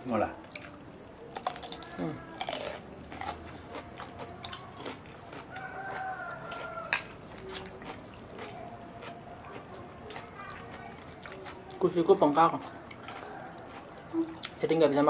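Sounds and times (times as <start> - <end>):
crunching cucumber bites: 1.3 - 11.6
rooster crowing: 5.5 - 7.2, 13.1 - 14.2.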